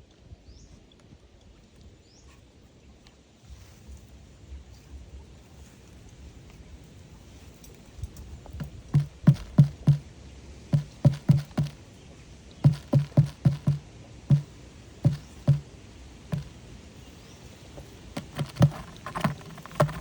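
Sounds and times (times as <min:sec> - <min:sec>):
scuffling flurry: 0:07.3 - 0:10.1, 0:10.7 - 0:11.9, 0:12.6 - 0:20.0
hollow knocks on wooden box: 0:08.6 - 0:10.1, 0:10.7 - 0:11.8, 0:12.6 - 0:15.7, 0:16.3 - 0:16.6, 0:18.2 - 0:20.0.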